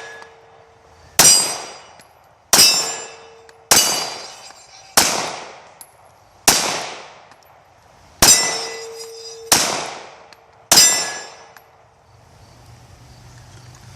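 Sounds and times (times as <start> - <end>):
steel target clanging: 0.0 - 0.5, 1.2 - 6.0, 8.2 - 9.8, 10.7 - 11.6
pistol shots: 1.2 - 4.4, 5.0 - 5.8, 6.4 - 7.4, 8.2 - 8.8, 9.5 - 11.5.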